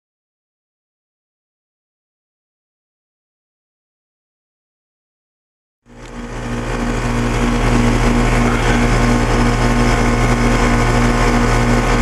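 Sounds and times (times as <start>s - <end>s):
compressor humming: 5.9s - 12.0s
fan whooshing: 5.9s - 12.0s.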